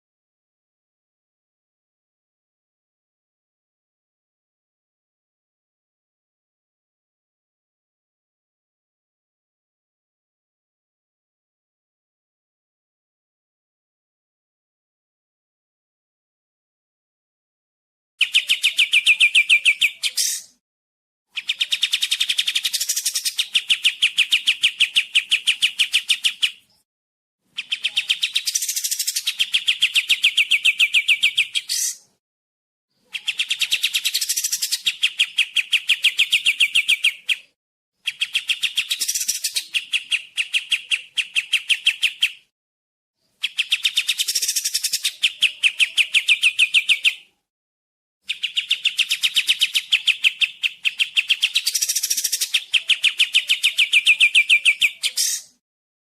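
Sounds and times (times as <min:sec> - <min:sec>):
bulbul trilling song: 0:18.2 - 0:20.6, 0:43.2 - 0:47.4, 0:48.2 - 0:55.6.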